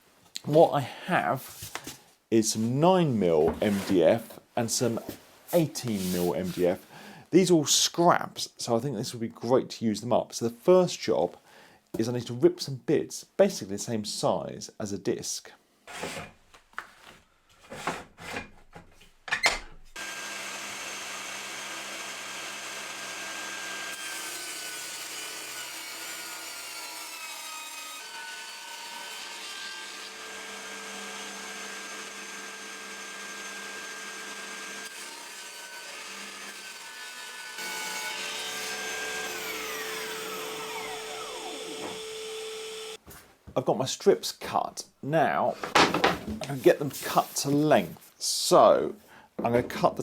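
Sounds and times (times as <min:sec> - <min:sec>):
table saw cutting: 0:20.0 - 0:43.0
knocks and clicks of boards: 0:45.6 - 0:46.4.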